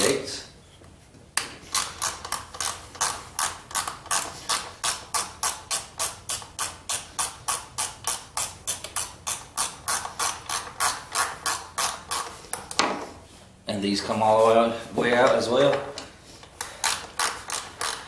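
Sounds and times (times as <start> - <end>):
ratchet wrench clicking: 1.6 - 12.8, 16.4 - 18.0.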